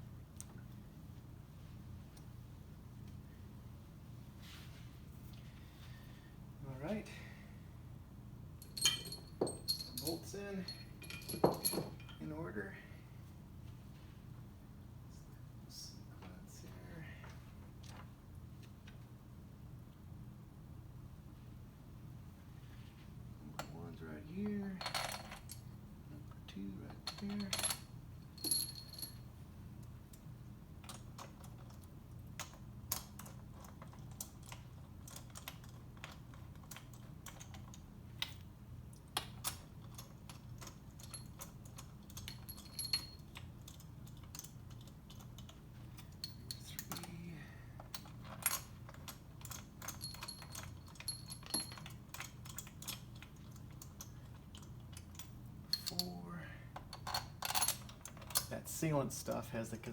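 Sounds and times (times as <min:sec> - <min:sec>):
low steady hum: 0:00.0 - 0:59.9
metal bolts clicking and clinking: 0:08.6 - 0:12.3, 0:26.9 - 0:29.2, 0:39.2 - 0:47.1, 0:47.8 - 0:56.2, 0:56.8 - 0:58.5.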